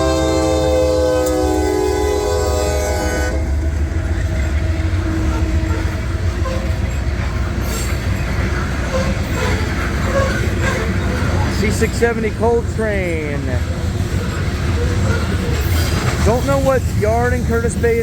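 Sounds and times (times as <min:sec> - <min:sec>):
locomotive air horn chord: 0:00.0 - 0:06.9
diesel locomotives and cars rumbling: 0:00.0 - 0:18.0.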